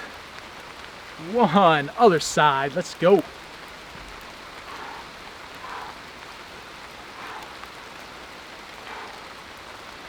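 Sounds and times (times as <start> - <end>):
rain falling: 0.0 - 10.0.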